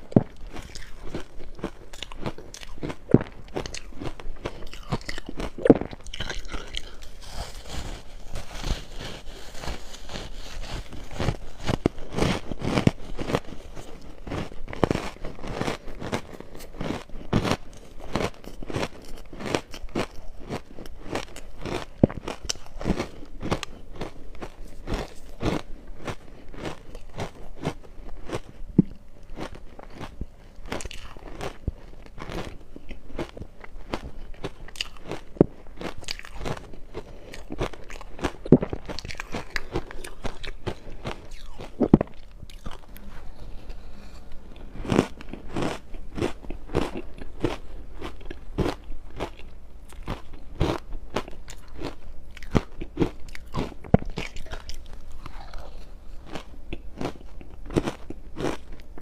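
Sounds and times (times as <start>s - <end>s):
crushed ice being chewed: 0.0s - 59.0s.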